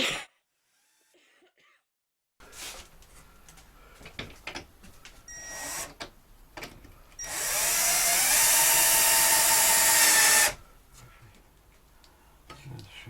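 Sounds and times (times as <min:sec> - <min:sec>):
power drill-driver whining: 0:00.7 - 0:01.1, 0:05.3 - 0:06.0, 0:07.2 - 0:10.6.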